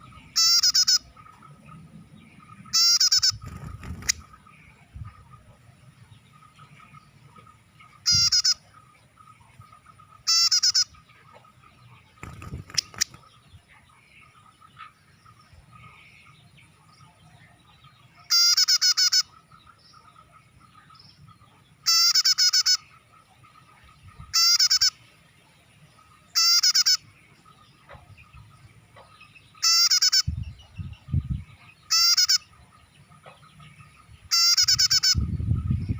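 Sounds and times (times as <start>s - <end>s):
bird chattering calls: 0.0s - 1.8s, 2.4s - 5.6s, 6.3s - 13.4s, 18.1s - 25.0s, 26.3s - 35.9s.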